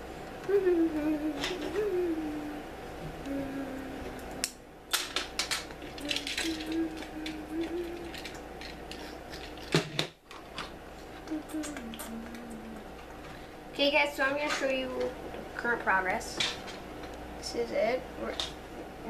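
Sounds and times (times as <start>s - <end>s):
soft humming: 0.0s - 19.0s
plastic bricks clicking and rattling: 4.9s - 7.4s.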